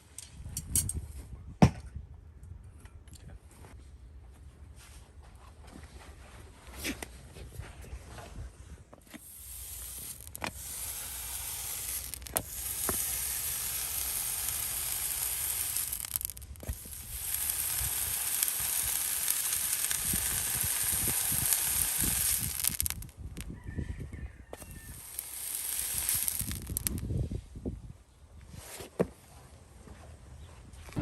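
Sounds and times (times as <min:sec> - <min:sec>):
hot horseshoe sizzling on hoof: 0:09.0 - 0:23.6, 0:24.5 - 0:27.2.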